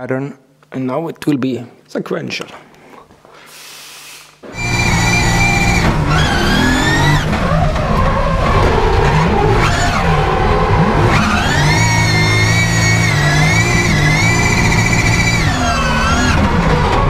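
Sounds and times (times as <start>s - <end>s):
tyres skidding: 4.4s - 17.0s
car engine revving hard: 4.5s - 17.0s.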